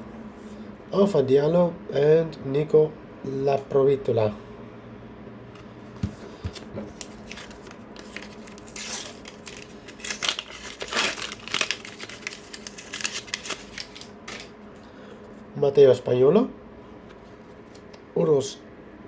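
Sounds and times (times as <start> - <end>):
wrapper tearing and crinkling: 6.9 - 14.6.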